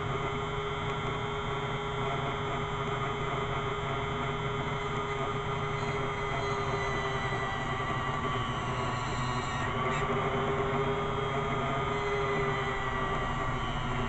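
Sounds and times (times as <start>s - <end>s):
rotary tool running: 4.4s - 14.0s.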